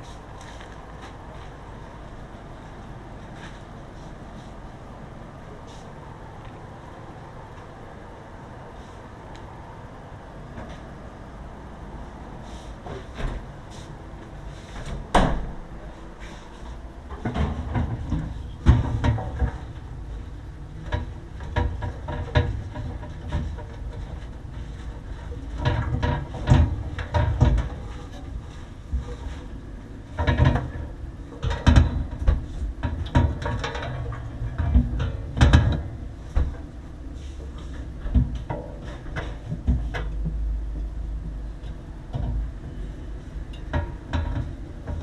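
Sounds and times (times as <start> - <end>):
low steady rumble: 0.0 - 45.0
knocks and rattles of tools: 17.1 - 20.2, 20.8 - 29.5, 30.1 - 36.7, 43.5 - 45.0.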